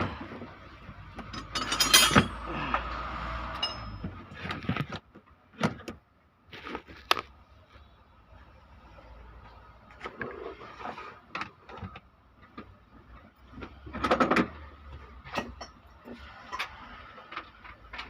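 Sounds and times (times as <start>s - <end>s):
metallic clinks and knocks of tools: 1.2s - 2.5s, 3.5s - 4.2s.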